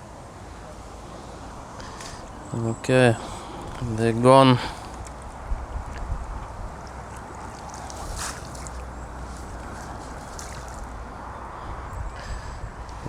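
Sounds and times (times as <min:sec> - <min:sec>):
water sloshing and dripping: 0:04.6 - 0:11.3.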